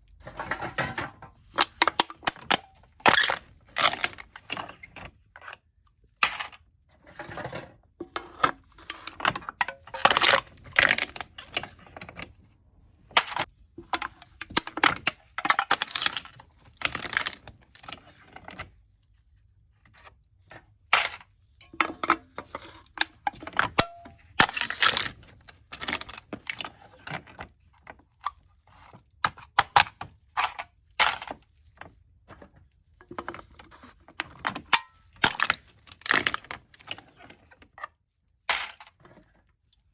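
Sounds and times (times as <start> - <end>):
drink cans being crushed: 0.1 - 4.7, 8.0 - 11.8, 13.1 - 18.0, 20.9 - 27.3, 29.3 - 31.4, 34.2 - 37.0, 38.5 - 39.1.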